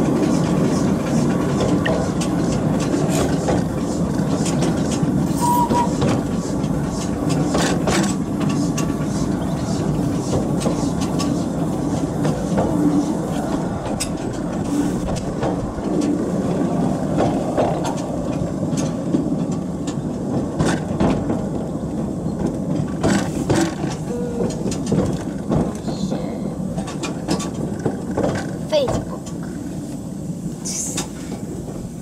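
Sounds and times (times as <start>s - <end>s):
wheels rumbling on rail: 0.0s - 32.0s.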